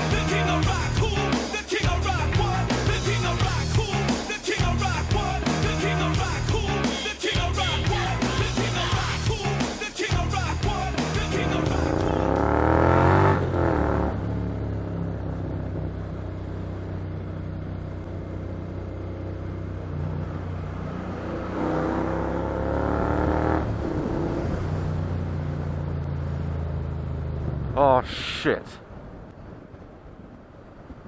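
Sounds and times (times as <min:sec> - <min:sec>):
motorcycle engine accelerating: 0:10.7 - 0:27.8.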